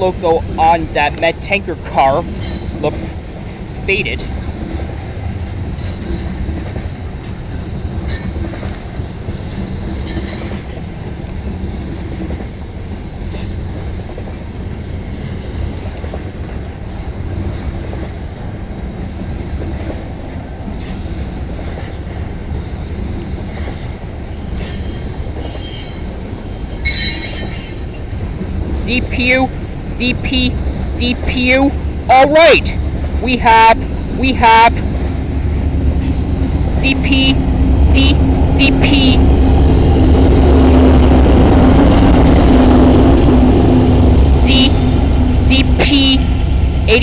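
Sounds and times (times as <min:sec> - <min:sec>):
high wheel squeal: 0:24.4 - 0:28.0.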